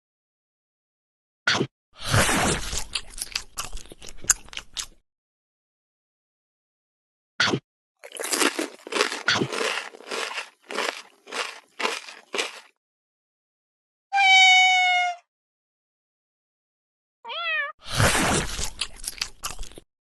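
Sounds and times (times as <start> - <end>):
crunchy chewing: 2.2 - 5.0, 8.0 - 12.8, 18.0 - 19.8
falling pitched cry: 14.2 - 15.2.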